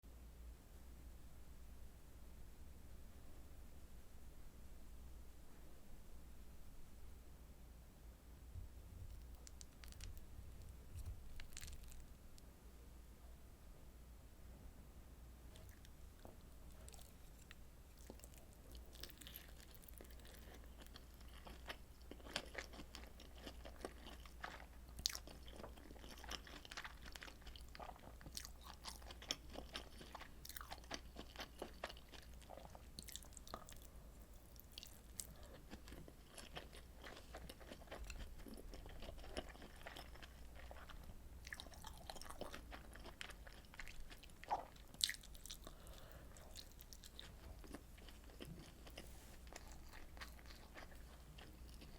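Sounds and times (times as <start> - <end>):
faint low hum: 0.0 - 51.9
close-miked chewing and biting: 11.0 - 12.1, 15.5 - 51.9.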